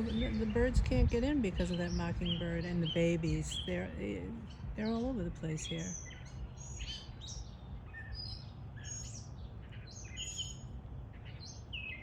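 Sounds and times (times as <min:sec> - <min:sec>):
steady low rumble: 0:00.0 - 0:06.5
bird singing: 0:00.0 - 0:12.0.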